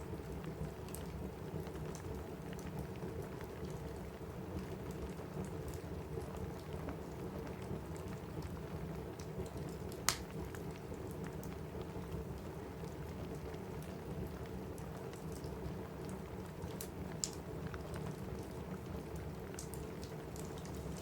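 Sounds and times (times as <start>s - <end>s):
rain on a roof: 0.0s - 21.0s
wood fire crackling and popping: 5.4s - 21.0s.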